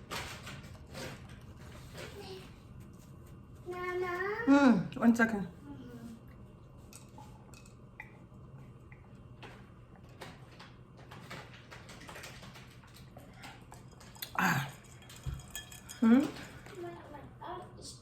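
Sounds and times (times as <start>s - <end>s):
dishes and utensils clattering: 6.9s - 8.2s, 10.0s - 17.1s.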